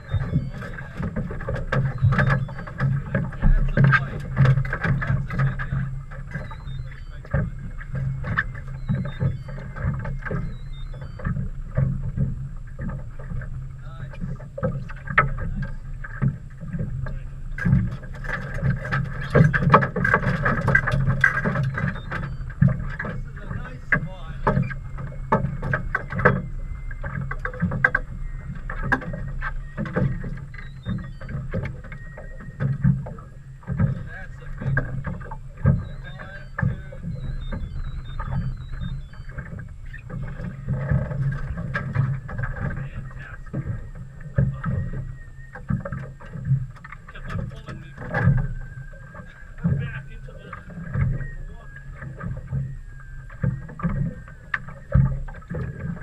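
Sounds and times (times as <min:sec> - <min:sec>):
electronic chirp: 0:00.0 - 0:01.1, 0:01.8 - 0:04.1, 0:05.4 - 0:11.5, 0:21.5 - 0:24.8, 0:25.5 - 0:33.4, 0:34.0 - 0:40.6
boat engine hum: 0:00.0 - 0:56.0
knocks against hull: 0:00.0 - 0:56.0
low rumble: 0:00.0 - 0:56.0
water lapping and slapping: 0:00.0 - 0:56.0.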